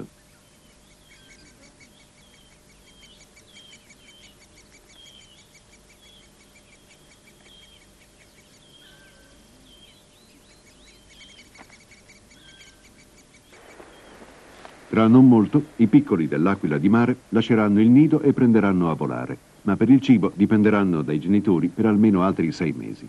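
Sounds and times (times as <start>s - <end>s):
faint bird chatter and whistles: 0.0s - 16.0s.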